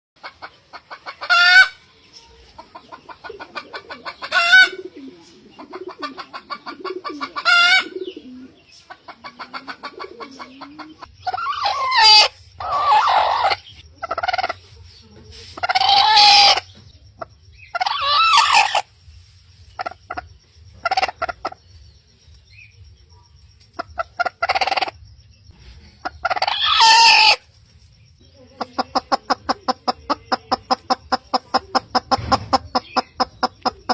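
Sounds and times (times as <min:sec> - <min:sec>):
chicken clucking: 0:00.2 - 0:33.9
rooster crowing: 0:11.3 - 0:13.6, 0:26.4 - 0:27.4.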